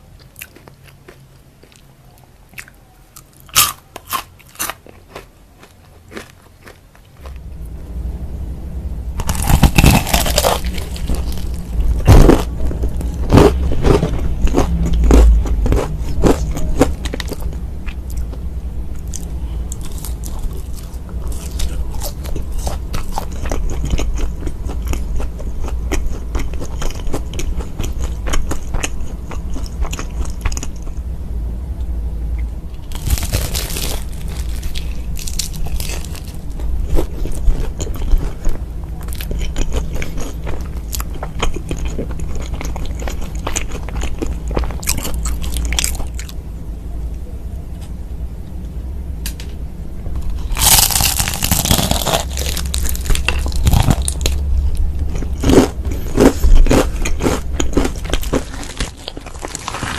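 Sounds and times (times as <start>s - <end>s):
low steady hum: 0.0s - 59.9s
crunchy chicken chewing: 9.2s - 18.4s, 19.0s - 30.9s, 32.8s - 46.4s, 50.2s - 59.9s.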